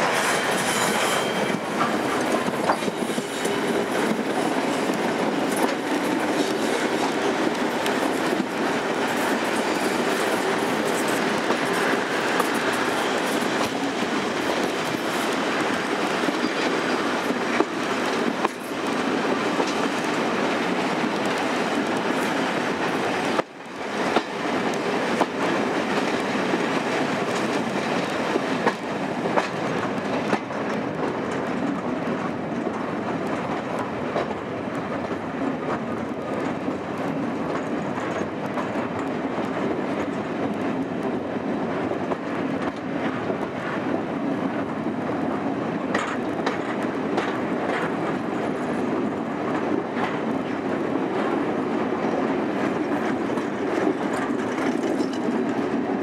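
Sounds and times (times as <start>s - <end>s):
rumble of train wheels on rail: 0.0s - 56.0s
wheels clicking over rail joints: 45.9s - 56.0s.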